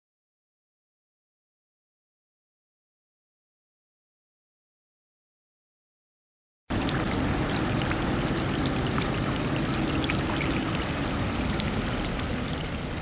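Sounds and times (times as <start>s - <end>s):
drops splashing: 6.7s - 13.0s
rain falling: 6.7s - 13.0s
water pouring: 6.7s - 13.0s.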